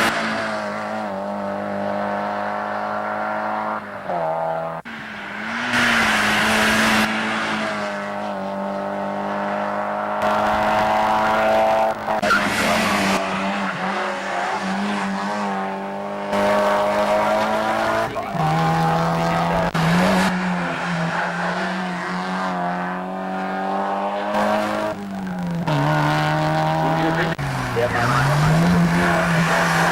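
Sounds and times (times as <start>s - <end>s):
race car engine at high revs: 0.0s - 29.9s.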